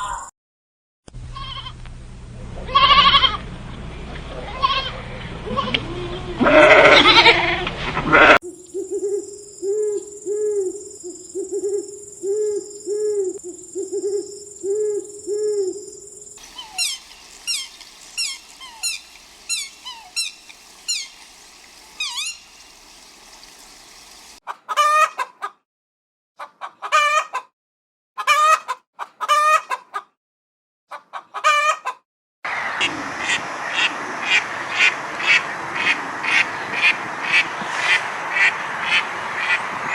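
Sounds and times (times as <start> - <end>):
chickens calling loudly: 6.6 - 25.5, 30.9 - 33.9
chickens clucking: 8.6 - 25.4, 30.9 - 32.0.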